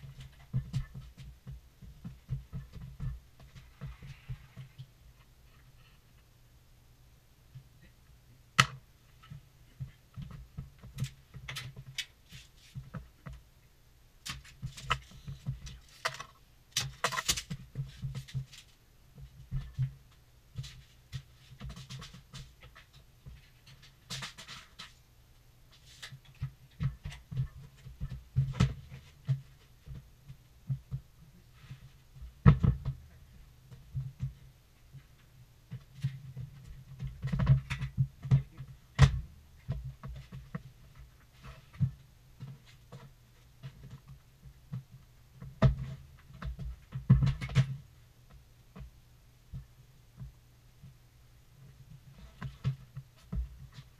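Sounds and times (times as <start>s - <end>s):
knocks and scrapes on plywood: 45.5s - 47.8s.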